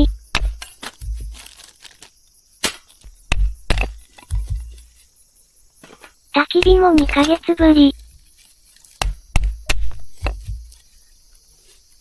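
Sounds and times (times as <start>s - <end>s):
dull thump: 0.0s - 1.6s, 2.6s - 5.0s, 9.0s - 10.8s
firewood cracking and knocking: 0.0s - 5.0s, 5.8s - 10.9s.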